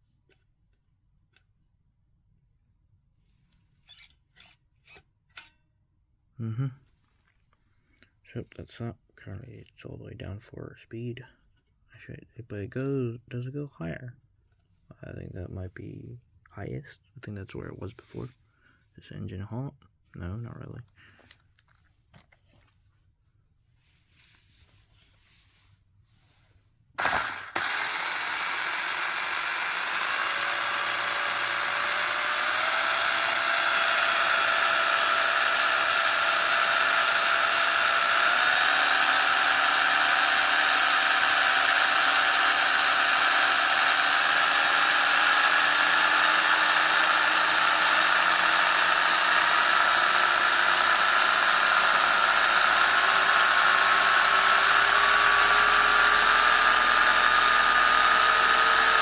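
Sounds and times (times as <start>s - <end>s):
electric motor whining: 27.0s - 59.0s.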